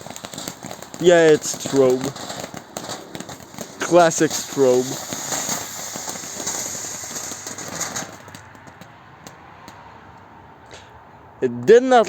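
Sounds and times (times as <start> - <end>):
firework fountain hissing: 0.0 - 9.4
firework fountain crackling: 0.0 - 10.1.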